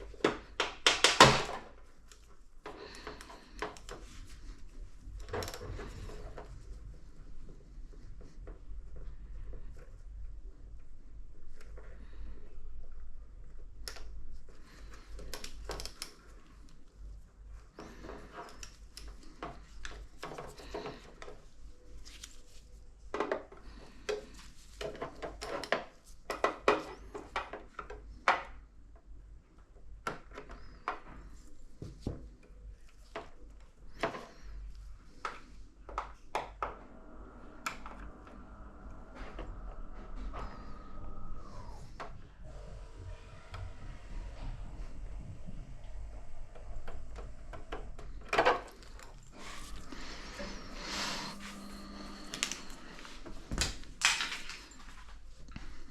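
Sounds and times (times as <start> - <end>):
faint steady low hum: 1.4 - 55.9
steady pitched hum: 36.5 - 55.9.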